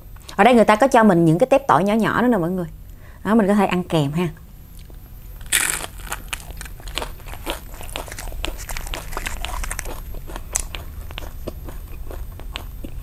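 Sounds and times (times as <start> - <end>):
crunchy chewing: 4.8 - 13.0.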